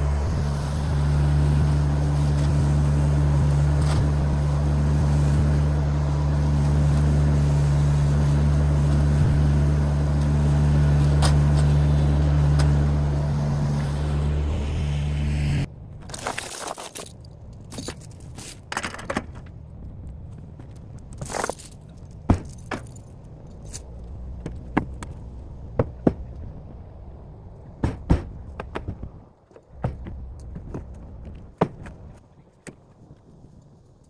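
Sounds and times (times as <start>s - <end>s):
engine running: 0.0s - 32.3s
metallic clinks and rattles: 16.0s - 19.4s, 20.6s - 23.9s.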